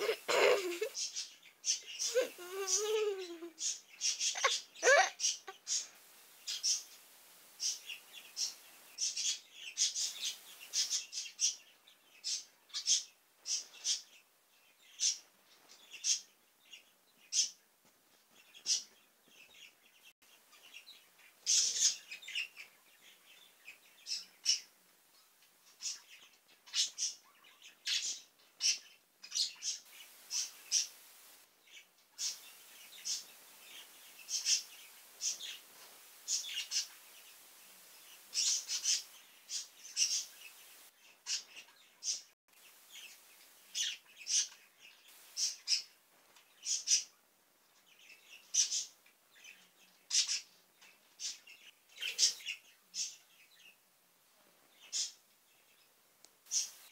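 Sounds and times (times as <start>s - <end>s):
bird chirping: 0.0s - 17.7s, 18.3s - 53.9s, 54.7s - 56.9s.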